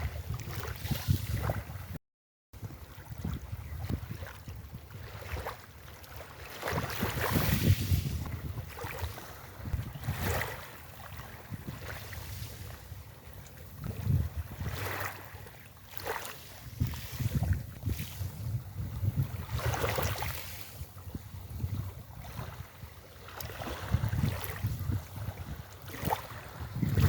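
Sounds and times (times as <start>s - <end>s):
wind gusting across microphone: 0.0s - 2.0s, 2.6s - 5.4s, 6.7s - 13.1s, 13.7s - 15.2s, 16.5s - 22.9s, 23.5s - 27.0s
sea waves washing onto beach: 6.4s - 13.8s, 14.6s - 21.0s.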